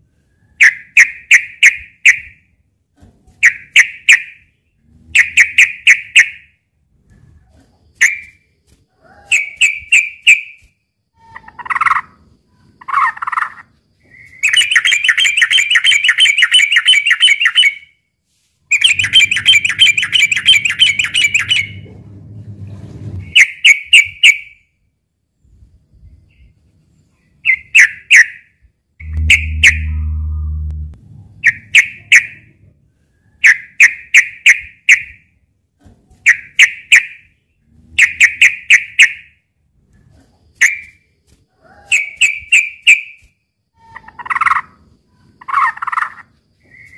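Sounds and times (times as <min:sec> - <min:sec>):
low hum: 0:18.9 - 0:23.3, 0:29.0 - 0:32.9.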